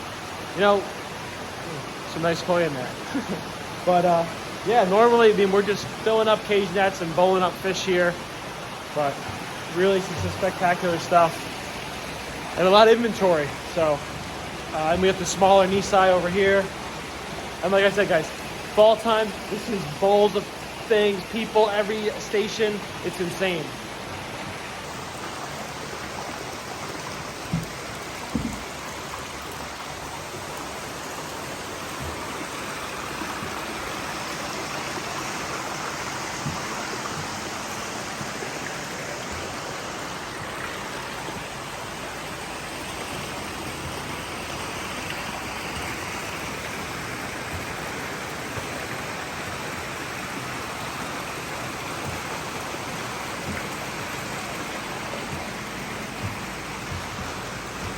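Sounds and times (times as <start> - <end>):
running water rushing: 0.0 - 57.9
short knocks: 27.4 - 28.9, 36.3 - 38.3, 52.0 - 57.9.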